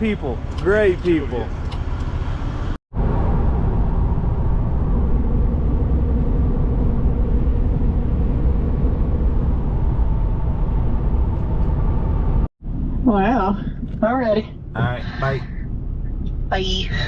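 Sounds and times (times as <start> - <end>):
truck road and engine rumble: 0.0 - 17.0.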